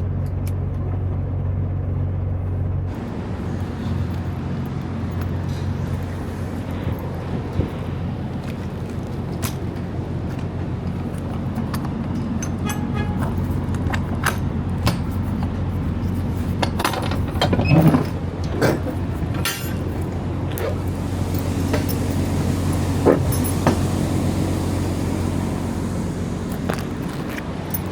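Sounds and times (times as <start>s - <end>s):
diesel truck engine idling: 0.0s - 27.9s.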